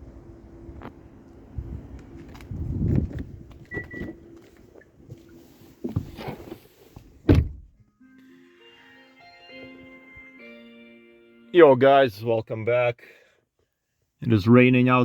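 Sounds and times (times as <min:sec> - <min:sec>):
loud thump: 0:07.2 - 0:07.7.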